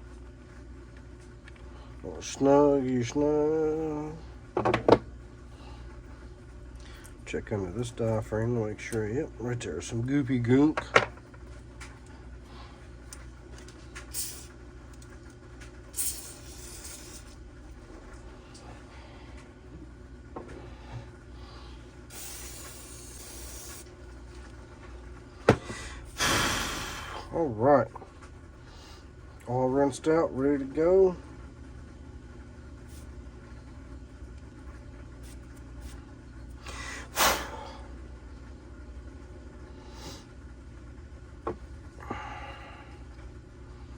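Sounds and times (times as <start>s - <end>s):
steady low hum: 0.0s - 43.9s
aerosol spray hissing: 15.9s - 17.4s, 22.1s - 23.9s.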